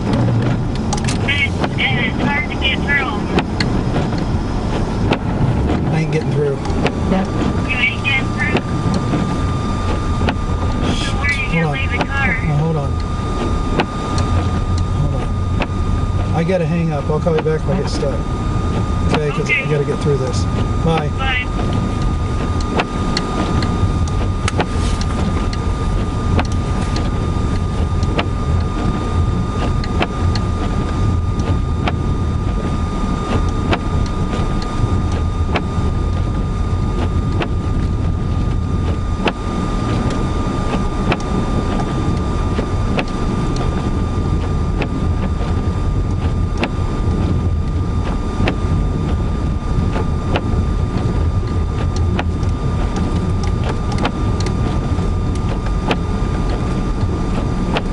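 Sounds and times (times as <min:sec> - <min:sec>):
car rumble from inside cabin: 0:00.0 - 0:57.9
steady high tone: 0:07.6 - 0:08.7, 0:10.8 - 0:13.2.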